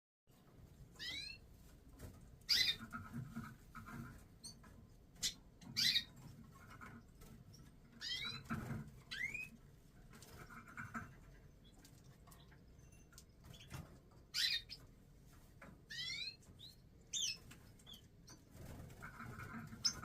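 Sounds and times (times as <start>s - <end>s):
finches chirping: 1.0s - 1.4s, 2.5s - 3.0s, 5.2s - 6.2s, 8.0s - 8.5s, 9.1s - 9.5s, 12.8s - 14.9s, 15.9s - 18.1s.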